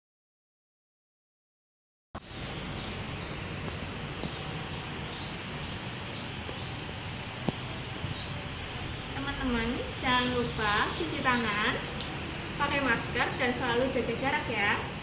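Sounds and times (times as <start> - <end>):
high falling bird chirp: 2.2 - 9.6
steady background hiss: 2.2 - 15.0.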